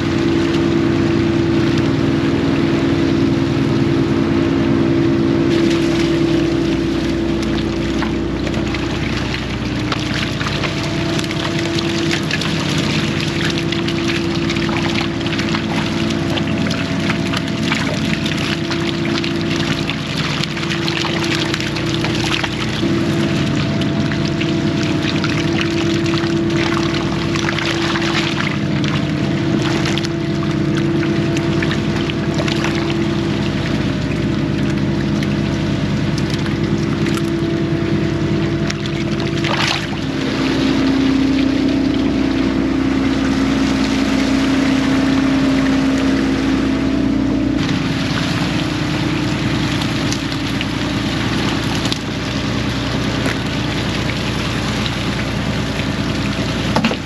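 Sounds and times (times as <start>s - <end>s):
boat engine running: 0.0s - 57.0s
water splashing around hull: 0.0s - 57.0s.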